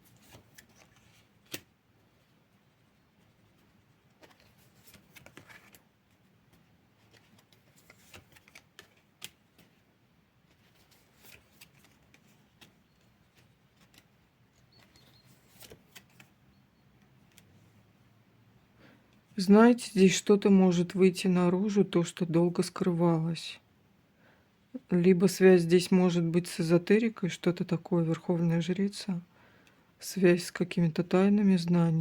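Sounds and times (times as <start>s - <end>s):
cards being shuffled: 0.1s - 1.7s, 3.6s - 16.4s.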